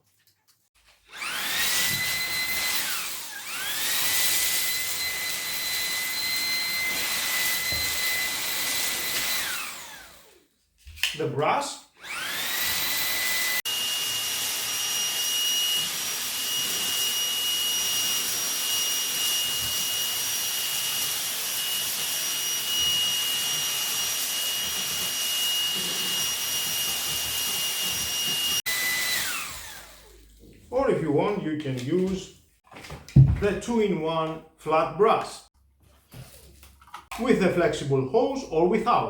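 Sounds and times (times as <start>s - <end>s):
stick vacuum motor whining: 1.1s - 10.4s, 12.0s - 30.4s.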